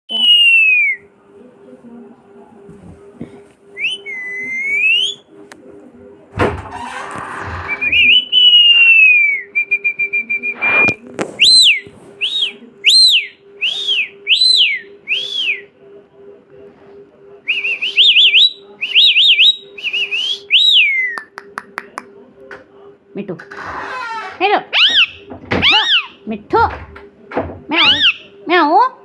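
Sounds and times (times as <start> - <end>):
parrot whistling: 3.8 - 5.2, 7.6 - 15.6, 17.5 - 21.2, 24.7 - 26.2, 27.8 - 28.3.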